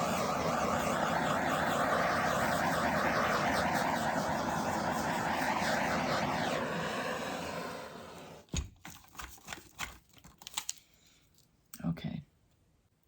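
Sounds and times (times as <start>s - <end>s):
butane torch hissing: 0.0s - 8.5s.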